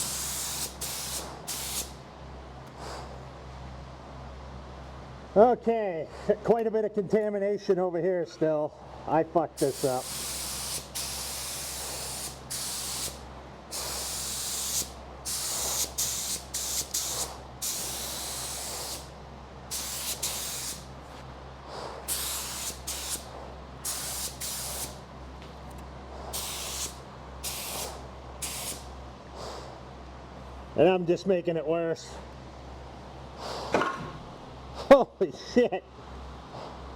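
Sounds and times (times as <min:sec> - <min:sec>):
paint spray gun hissing: 0:00.0 - 0:02.0, 0:09.6 - 0:20.9, 0:22.1 - 0:25.0, 0:26.3 - 0:28.9
steady low hum: 0:00.0 - 0:36.9.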